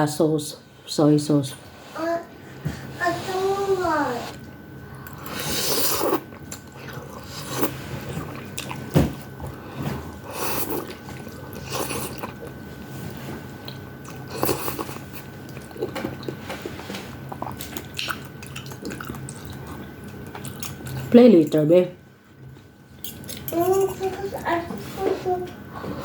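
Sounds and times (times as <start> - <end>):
chewing and crunchy bites: 5.0 - 9.4, 10.2 - 12.6, 13.6 - 21.1.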